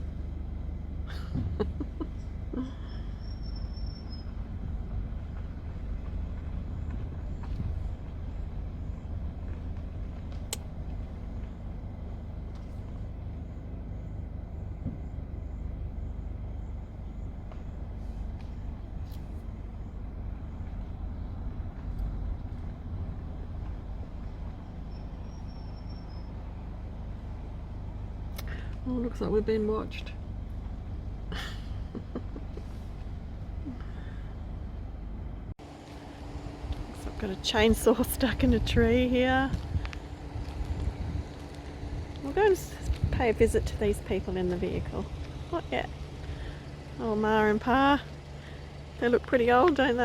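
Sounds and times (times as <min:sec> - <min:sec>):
engine and tyre rumble: 0:00.0 - 0:50.0.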